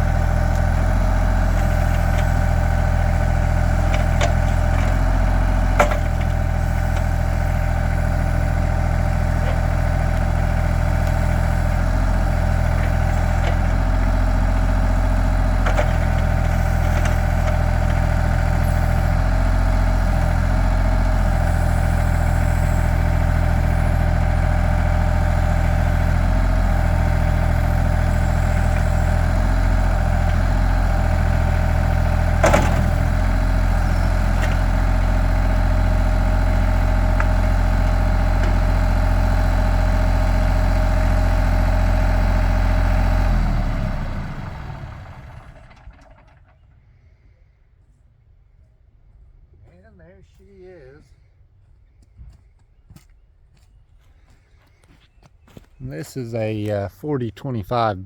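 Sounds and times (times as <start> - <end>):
tractor engine running: 0.0 - 46.8, 55.4 - 58.0.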